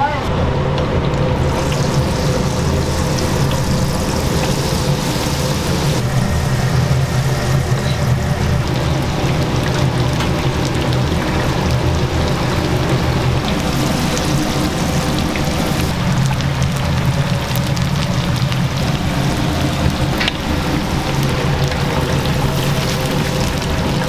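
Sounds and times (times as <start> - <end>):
low hum: 0.0 - 24.0
oil sizzling in deep fryer: 1.0 - 24.0.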